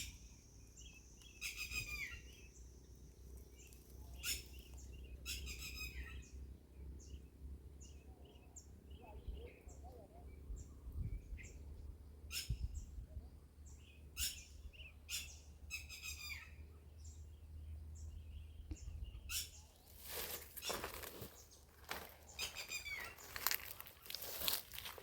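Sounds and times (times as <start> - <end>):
bird trill: 0.0 - 2.8, 3.5 - 6.4, 14.2 - 16.6, 22.3 - 24.9
birds chirping: 0.0 - 25.0
rustling crackling noise: 19.9 - 25.0.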